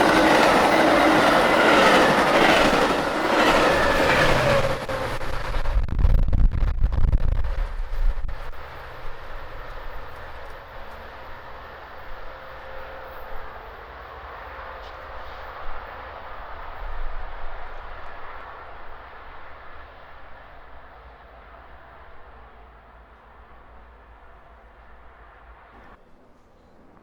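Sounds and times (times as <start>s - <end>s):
train wheel clicks: 0.0s - 5.7s
train rumble: 0.0s - 27.0s.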